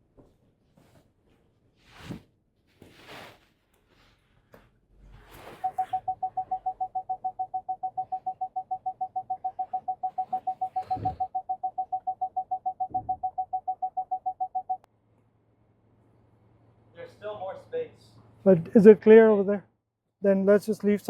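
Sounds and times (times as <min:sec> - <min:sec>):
parking sensor alarm beeping rapidly: 0:05.6 - 0:14.8.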